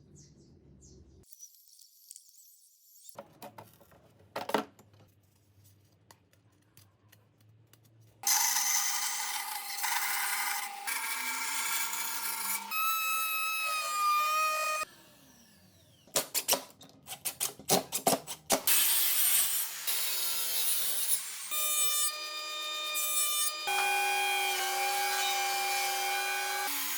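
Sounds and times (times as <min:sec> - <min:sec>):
power tool cutting wood: 0:08.2 - 0:16.1, 0:18.7 - 0:26.9.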